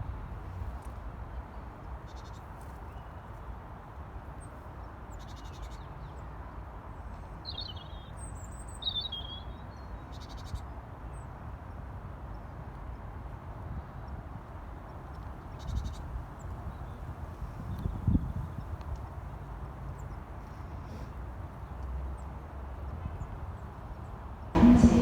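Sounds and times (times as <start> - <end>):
low outdoor rumble: 24.6 - 25.0.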